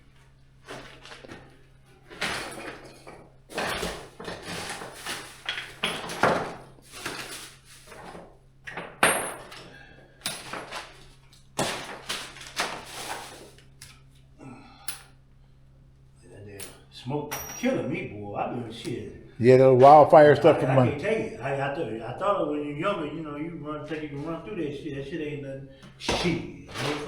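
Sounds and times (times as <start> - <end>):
scraping clatters: 26.7 - 27.0.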